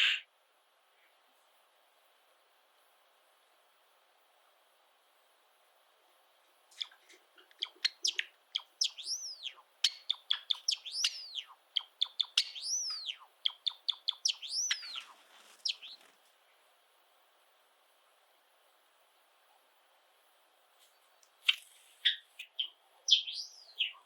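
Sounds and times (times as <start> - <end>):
sparrow singing: 6.8 - 16.1, 21.5 - 24.0.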